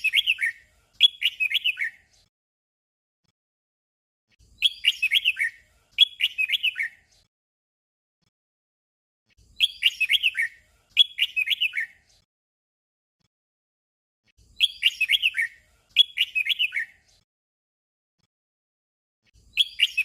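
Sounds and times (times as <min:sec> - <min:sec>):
bird singing bright notes: 0:00.0 - 0:02.1, 0:04.5 - 0:07.2, 0:09.5 - 0:12.1, 0:14.4 - 0:17.2, 0:19.4 - 0:20.0.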